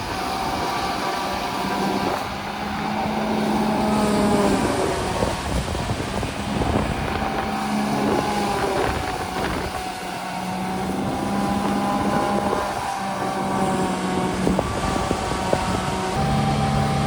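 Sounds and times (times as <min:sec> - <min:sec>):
grass cutting machine: 0:00.0 - 0:17.0
tractor diesel engine running: 0:00.0 - 0:17.0.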